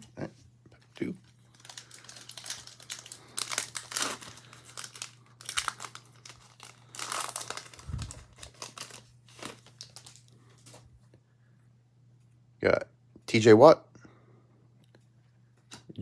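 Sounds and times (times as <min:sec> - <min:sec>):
faint steady hum: 0:00.0 - 0:16.0
card pack wrappers crinkling: 0:00.8 - 0:10.8.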